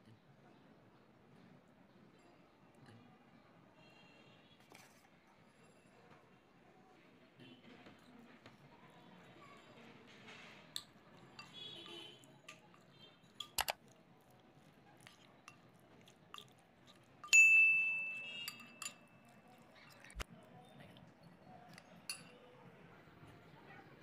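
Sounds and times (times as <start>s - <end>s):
kitchenware clinking: 10.4s - 13.9s, 16.3s - 20.2s, 21.7s - 22.5s
bowl struck and ringing: 17.3s - 19.0s.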